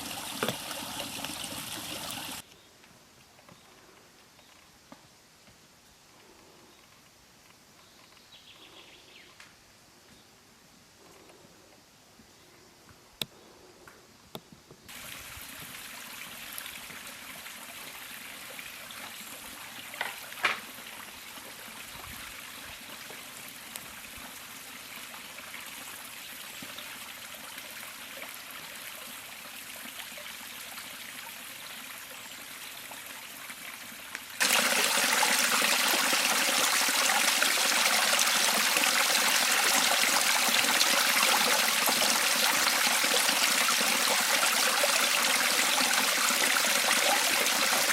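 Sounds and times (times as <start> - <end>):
river water flowing: 0.0 - 2.4, 14.9 - 47.9.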